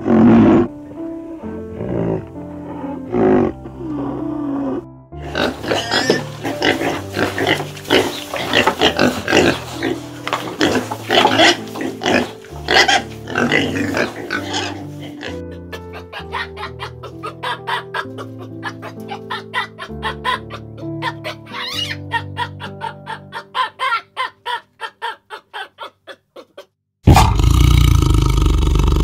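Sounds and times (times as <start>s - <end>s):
picked melody background music: 0.0s - 25.0s
piglets squealing: 5.2s - 27.4s.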